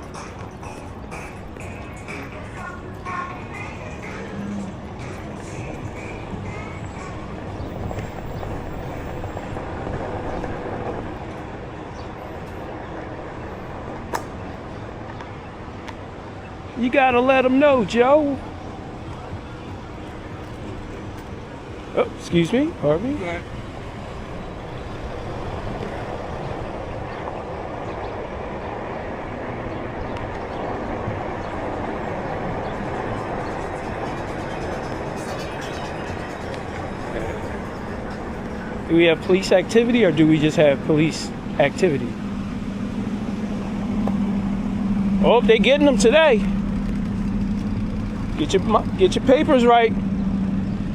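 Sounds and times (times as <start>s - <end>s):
street traffic noise: 0.0s - 50.9s
sharp click: 14.1s - 14.4s.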